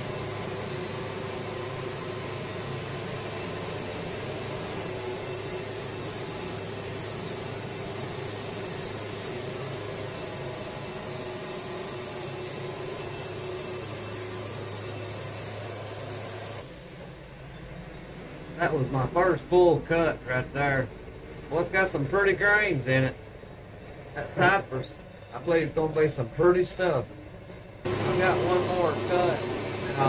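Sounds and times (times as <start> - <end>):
band sawmill cutting log: 0.0 - 17.0, 27.8 - 30.0
high hiss: 1.6 - 17.4, 27.9 - 30.0.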